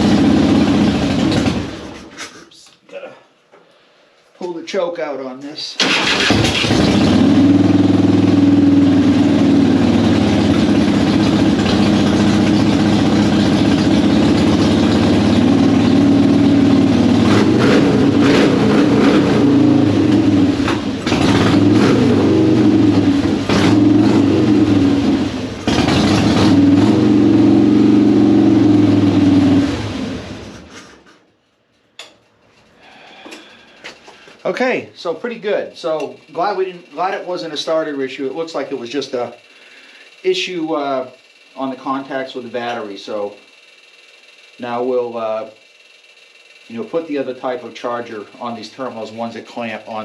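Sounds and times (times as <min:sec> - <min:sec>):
motorcycle engine revving: 0:00.0 - 0:02.1, 0:05.8 - 0:31.1.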